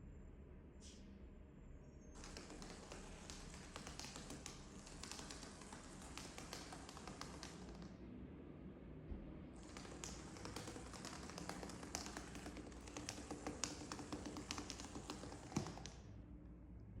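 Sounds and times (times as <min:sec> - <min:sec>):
toy ball knocking on hard floor: 0:02.2 - 0:07.9, 0:09.6 - 0:16.0.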